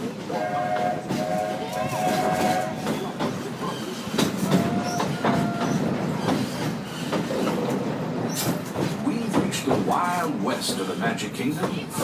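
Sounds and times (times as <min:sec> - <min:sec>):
train wheels clacking on rails: 0:00.0 - 0:12.0
train wheel squeals: 0:00.4 - 0:08.8.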